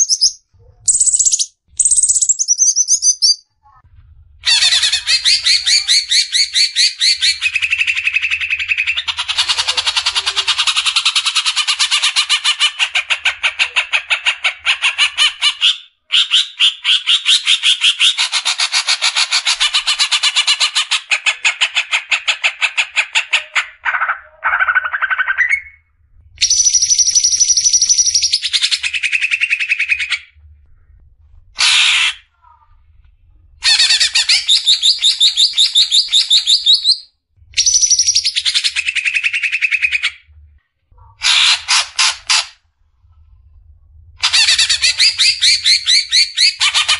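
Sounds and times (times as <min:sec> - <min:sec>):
bird singing rapid notes: 0:00.0 - 0:03.4.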